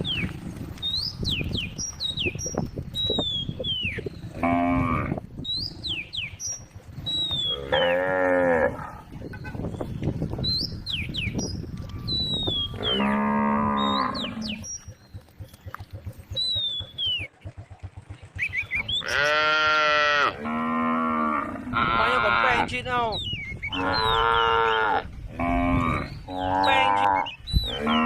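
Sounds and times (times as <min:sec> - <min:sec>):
cow mooing: 0:04.3 - 0:05.2, 0:07.4 - 0:09.1, 0:12.6 - 0:14.6, 0:19.0 - 0:22.7, 0:23.7 - 0:28.0.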